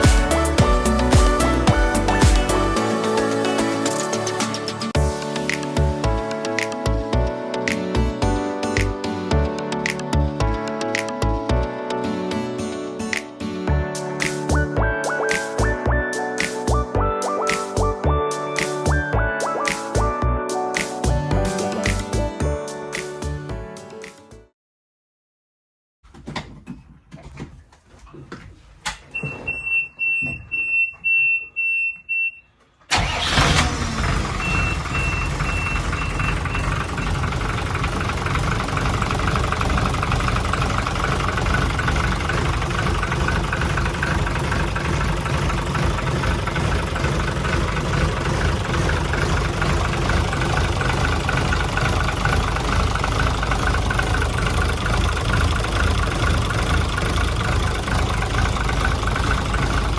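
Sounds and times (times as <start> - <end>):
boat engine starting and idling: 0.0 - 5.1, 32.9 - 59.9
pulsing warning beep: 34.4 - 37.3.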